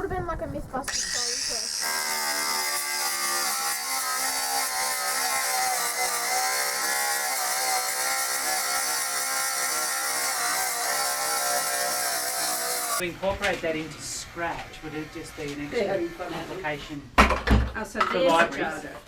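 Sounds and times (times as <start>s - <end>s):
rotary grinder grinding steel: 0.9s - 13.0s.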